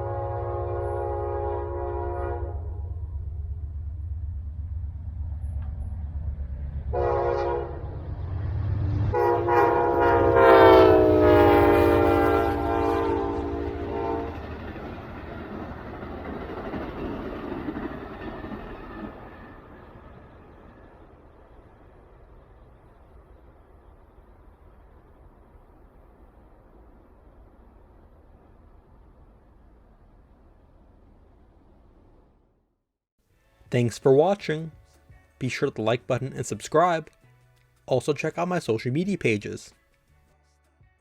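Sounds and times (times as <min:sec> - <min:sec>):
train horn blasts: 0:00.0 - 0:03.0, 0:06.9 - 0:08.0, 0:08.8 - 0:14.6
locomotive engine drone: 0:00.0 - 0:32.2
train cars rushing past: 0:00.0 - 0:32.5.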